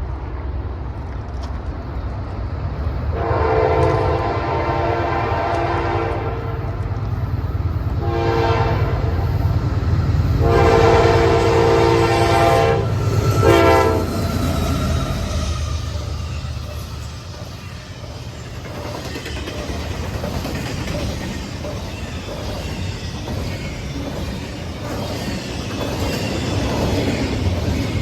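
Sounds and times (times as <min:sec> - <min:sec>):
passing train rumble: 0:00.0 - 0:28.0
locomotive air horn blasts: 0:03.1 - 0:06.8, 0:08.0 - 0:09.2, 0:10.4 - 0:14.2.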